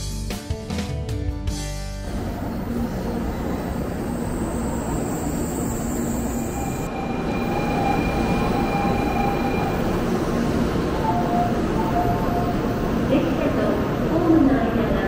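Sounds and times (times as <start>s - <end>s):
busy platform hubbub: 2.0s - 15.0s
train rumbling: 2.0s - 15.0s.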